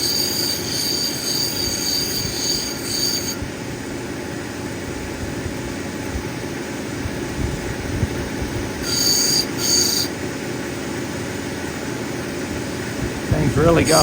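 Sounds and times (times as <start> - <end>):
grinding machine humming: 11.9 - 14.0.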